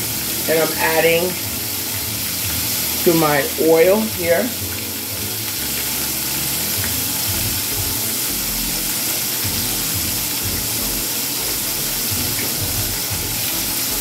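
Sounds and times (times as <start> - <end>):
shrimp sizzling in hot oil: 0.0 - 14.0.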